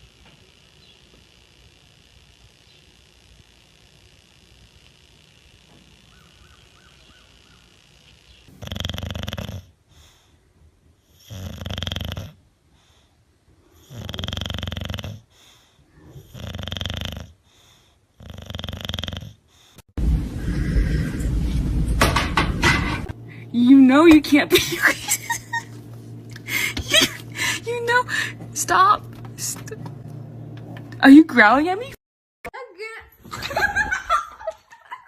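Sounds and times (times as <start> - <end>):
dog snoring loudly: 7.6 - 10.3, 11.0 - 12.5, 13.6 - 19.8.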